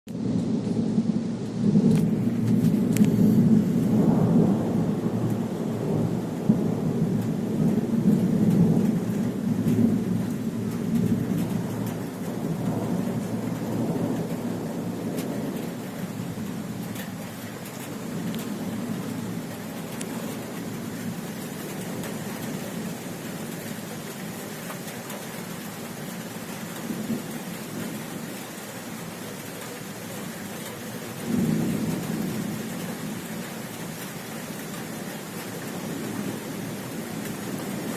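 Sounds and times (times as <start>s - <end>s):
thunder rumbling: 0.1s - 28.7s, 30.2s - 37.9s
steady rain: 0.1s - 37.9s
raindrops clicking: 1.4s - 3.2s, 5.2s - 5.6s, 7.1s - 28.4s.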